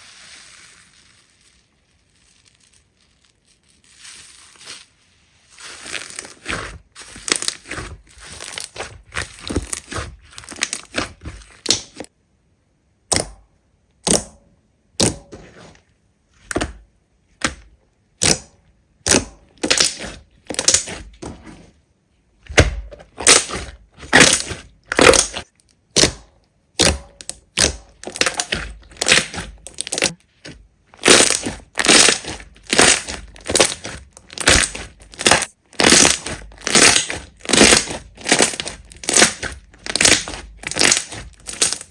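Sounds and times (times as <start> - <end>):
slime squeezed crackling pops: 18.2 - 21.1, 23.2 - 30.2, 31.0 - 41.9.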